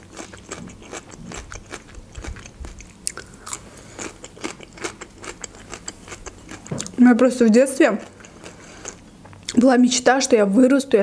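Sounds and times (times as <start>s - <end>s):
chewing crunchy cucumber: 0.0s - 7.0s, 7.8s - 9.6s.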